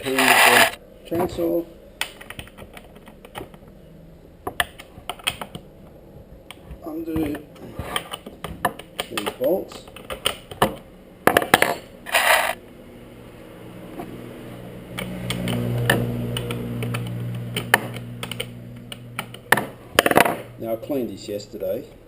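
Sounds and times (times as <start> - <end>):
short scraping rasp: 0.0 - 0.8, 12.1 - 12.6
low steady hum: 0.0 - 22.0.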